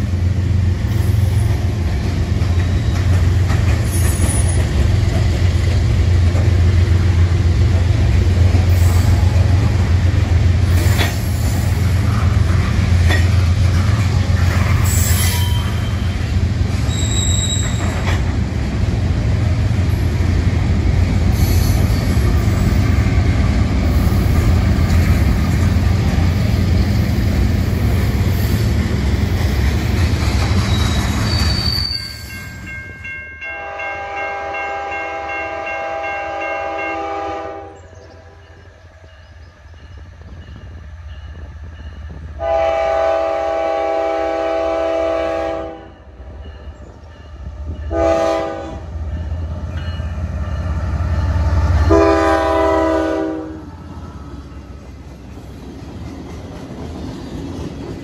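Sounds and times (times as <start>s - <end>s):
freight cars clattering on rails: 1.4s - 6.8s, 10.6s - 18.5s, 21.3s - 31.9s
locomotive air horn blasts: 33.5s - 37.8s, 42.4s - 46.0s, 47.9s - 48.9s, 51.9s - 53.6s.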